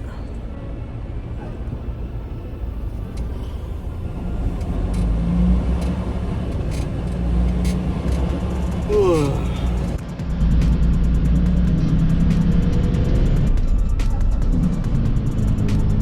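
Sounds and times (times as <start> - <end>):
truck engine rumbling: 0.0 - 10.1.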